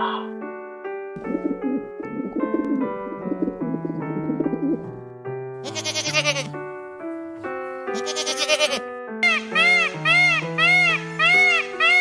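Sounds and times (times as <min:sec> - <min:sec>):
light piano music: 0:00.0 - 0:12.0
pigeons cooing: 0:01.2 - 0:04.8
goat bleating: 0:05.6 - 0:06.6, 0:07.9 - 0:08.8.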